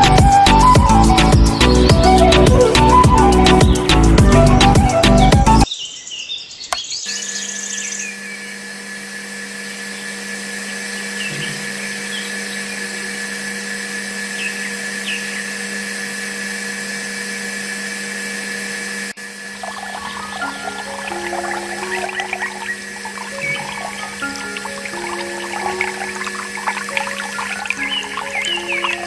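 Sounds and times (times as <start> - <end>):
electric motor whining: 0.0 - 5.7, 7.1 - 29.0.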